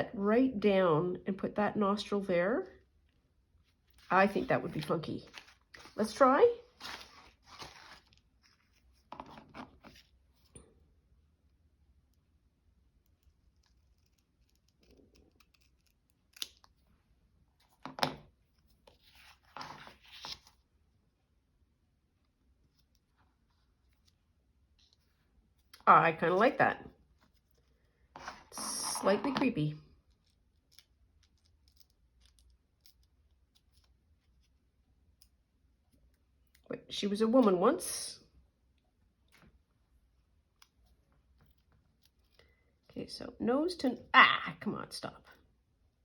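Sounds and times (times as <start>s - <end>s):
scissors cutting paper: 13.1s - 16.7s.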